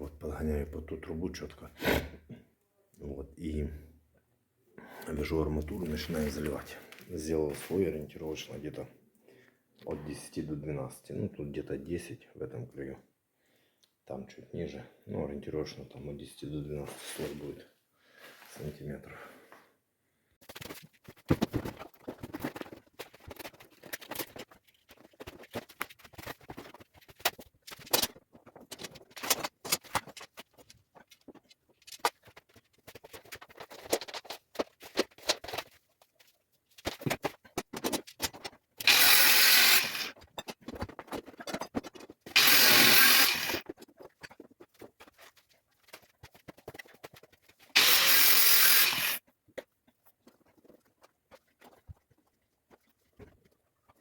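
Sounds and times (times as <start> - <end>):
power tool bursts: 38.8 - 40.2, 42.3 - 43.6, 47.8 - 49.2.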